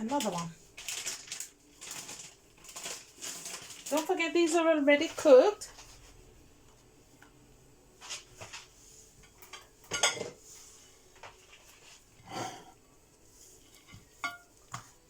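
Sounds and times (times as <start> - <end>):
utensils clinking against dishes: 9.2 - 10.4, 13.8 - 14.6.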